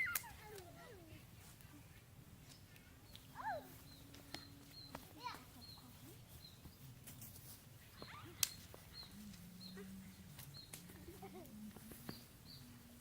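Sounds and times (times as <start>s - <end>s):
small bird chirping: 3.1s - 6.9s, 7.8s - 11.4s.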